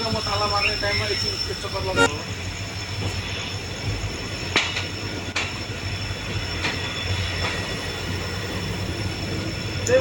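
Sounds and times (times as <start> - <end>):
train wheels rumbling on rails: 0.0 - 10.0
rail joint clacks: 3.0 - 10.0.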